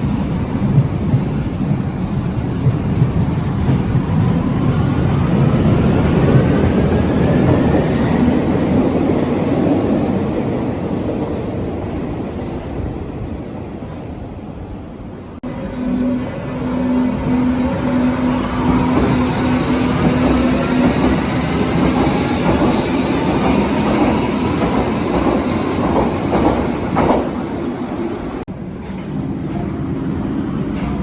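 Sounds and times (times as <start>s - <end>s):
train wheels clattering over rails: 18.4s - 27.6s.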